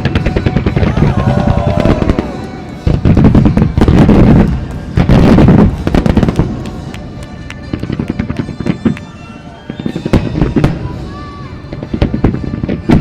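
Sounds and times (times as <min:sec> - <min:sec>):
fireworks booming and crackling: 0:00.0 - 0:13.0
music: 0:00.0 - 0:13.0.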